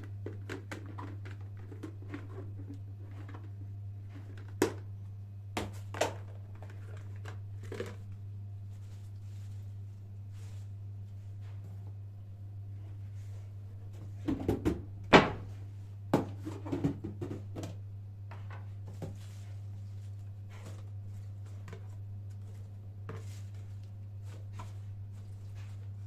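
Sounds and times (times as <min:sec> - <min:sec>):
steady low hum: 0:00.0 - 0:26.0
objects knocking and clattering: 0:16.1 - 0:19.2.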